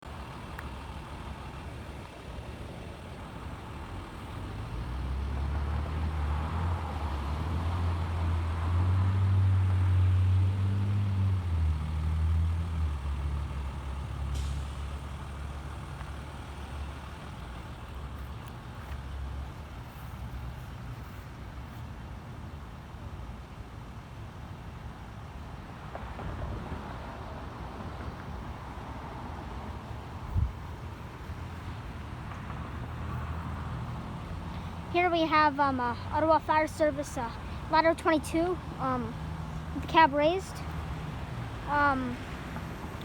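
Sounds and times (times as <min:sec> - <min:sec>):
heavy truck engine running: 0:00.0 - 0:43.0.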